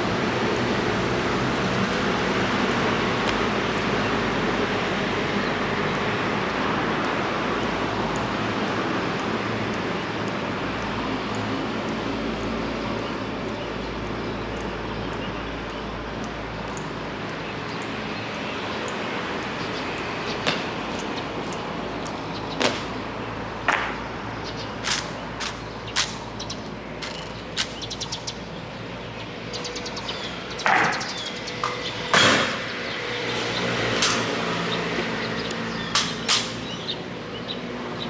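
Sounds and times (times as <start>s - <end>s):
rain hissing: 24.8s - 29.1s, 33.2s - 37.3s
sharp clicks or knocks: 35.9s - 36.8s.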